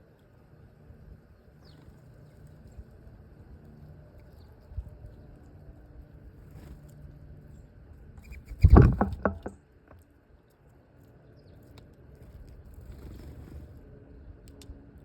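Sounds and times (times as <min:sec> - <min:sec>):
faint low hum: 0:00.0 - 0:15.0
clatter of sharp knocks: 0:08.6 - 0:09.6.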